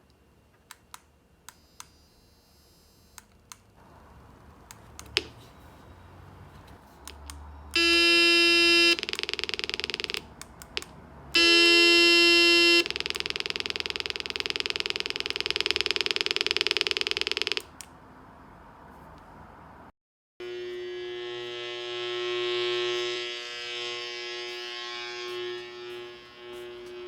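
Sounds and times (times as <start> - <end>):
buzzy electronic tone: 7.7 - 17.6, 20.4 - 27.0.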